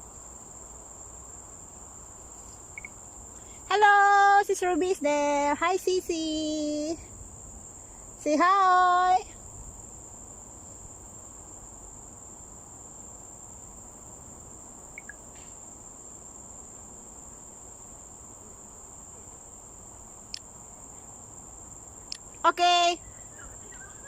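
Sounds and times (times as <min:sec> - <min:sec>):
insects trilling: 0:00.0 - 0:24.0
tiny chirps: 0:02.7 - 0:03.0, 0:14.9 - 0:15.5.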